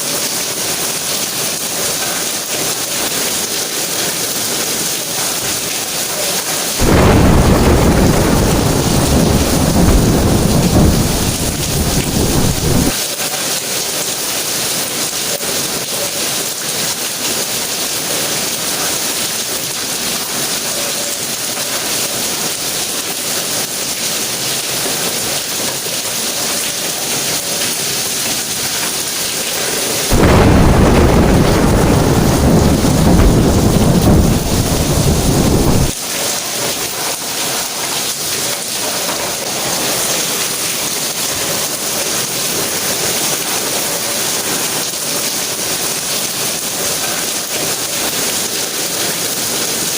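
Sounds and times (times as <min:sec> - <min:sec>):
rain hissing: 0:00.0 - 0:49.9
deep rumble of thunder: 0:06.8 - 0:13.0, 0:30.1 - 0:36.0.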